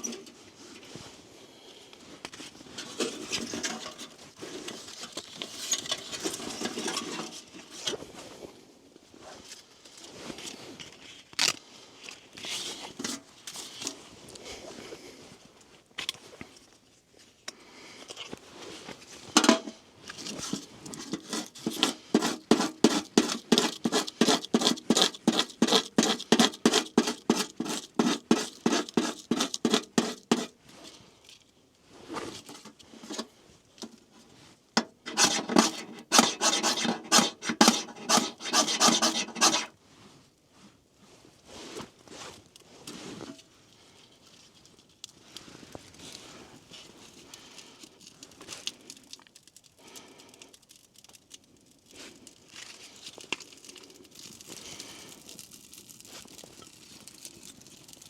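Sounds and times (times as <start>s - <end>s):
hand tool scraping wood: 19.4s - 19.8s, 20.5s - 30.6s, 34.8s - 39.8s.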